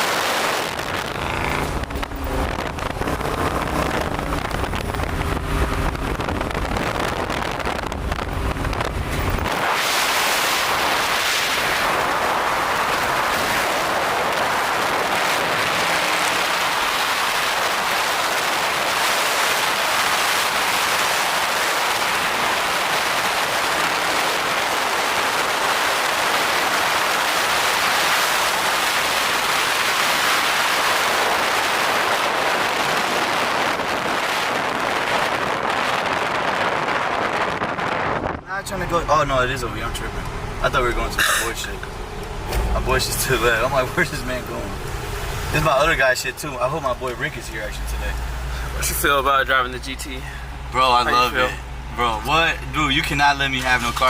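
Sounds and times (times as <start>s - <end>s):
wind noise on microphone: 0.0s - 38.5s
car engine and exhaust droning: 0.0s - 54.0s.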